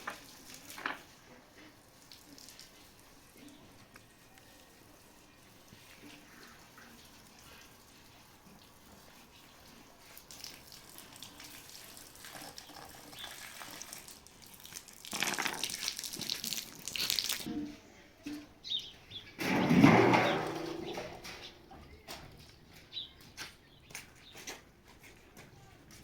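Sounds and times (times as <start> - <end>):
water splashing: 10.1 - 17.5.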